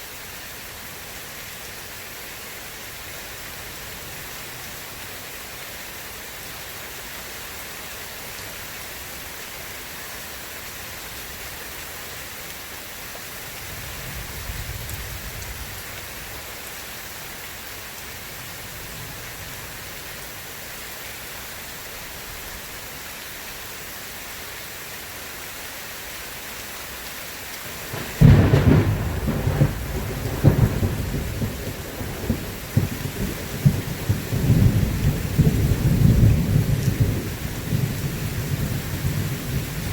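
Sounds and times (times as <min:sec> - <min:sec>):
steady rain: 0:00.0 - 0:39.9
distant thunder rolling: 0:27.7 - 0:39.9
loud thunderclap: 0:27.9 - 0:39.9.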